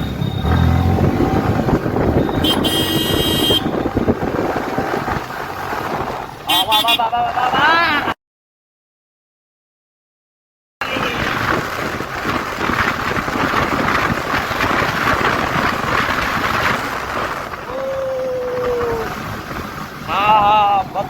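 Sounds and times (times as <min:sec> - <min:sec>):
wind buffeting microphone: 0:00.0 - 0:06.3, 0:10.9 - 0:21.0
traffic noise: 0:00.0 - 0:08.2, 0:10.8 - 0:21.0.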